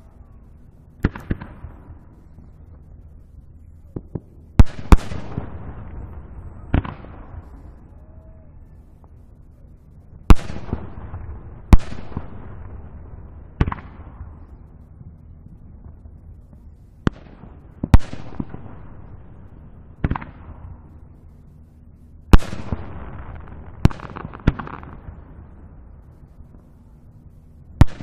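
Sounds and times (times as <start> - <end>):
distant fireworks booming: 0.0 - 28.0.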